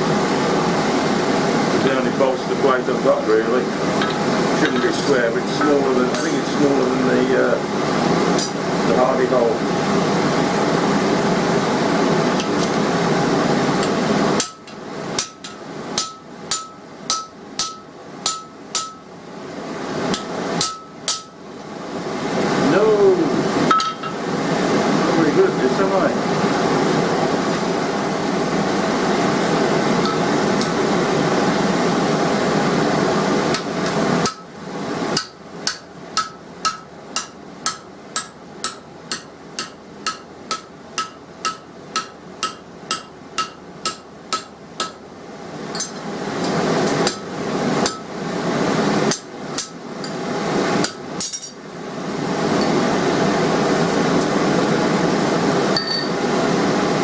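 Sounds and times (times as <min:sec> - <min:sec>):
hammer striking steel on anvil: 0:13.8 - 0:19.1, 0:20.1 - 0:21.4, 0:23.7 - 0:24.2, 0:30.0 - 0:30.8, 0:33.5 - 0:34.5, 0:35.2 - 0:45.0, 0:45.7 - 0:46.1, 0:46.8 - 0:48.1, 0:49.1 - 0:50.2, 0:50.8 - 0:51.6, 0:55.8 - 0:56.2.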